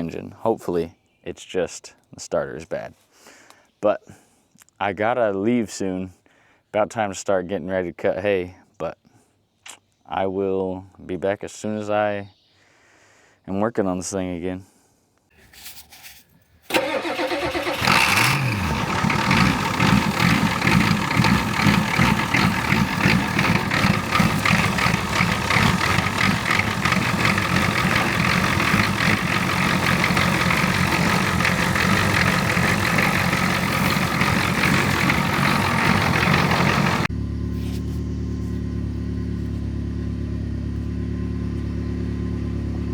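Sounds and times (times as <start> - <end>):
truck engine revving: 16.7 - 37.1.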